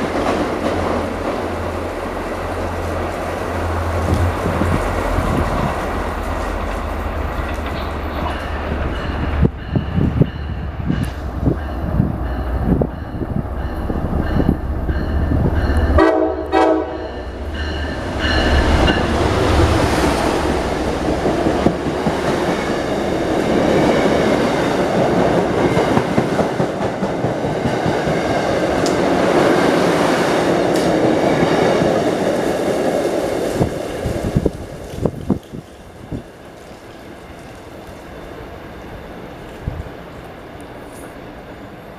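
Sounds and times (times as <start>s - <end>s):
train wheels clattering on rails: 0.0s - 2.2s, 4.0s - 38.0s
wind noise on microphone: 3.9s - 6.6s, 7.2s - 16.0s, 31.3s - 36.4s, 39.5s - 40.0s
train horn blast: 15.8s - 17.4s.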